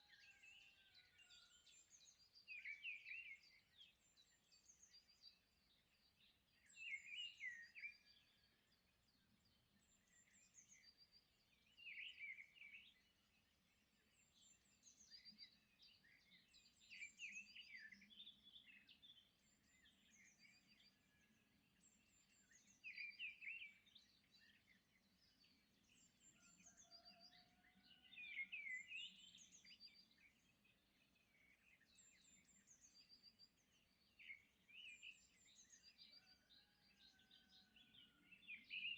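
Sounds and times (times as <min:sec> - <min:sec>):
bird chirps and twittering: 0:09.8 - 0:38.9.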